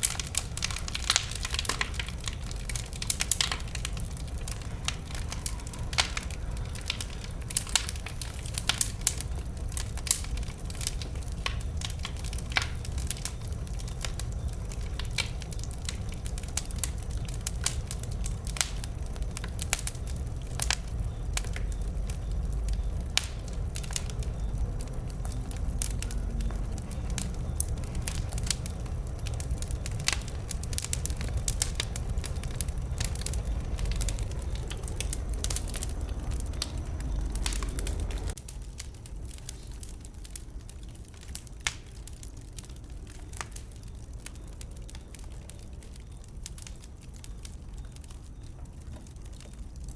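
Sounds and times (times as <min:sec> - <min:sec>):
bonfire crackling and popping: 0:00.0 - 0:49.9
low steady fire rumble: 0:00.0 - 0:49.9.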